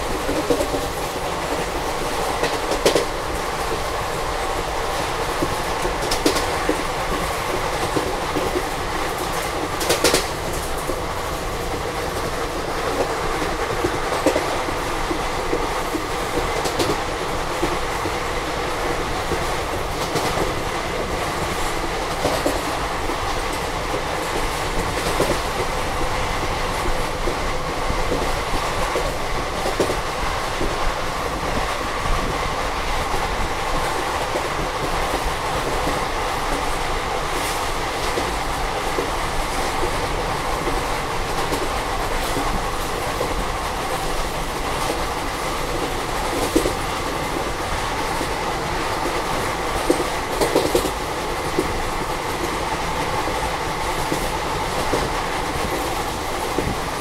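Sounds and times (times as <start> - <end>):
train wheels rumbling on rail: 0.0 - 57.0
track clicks and knocks: 5.4 - 11.0.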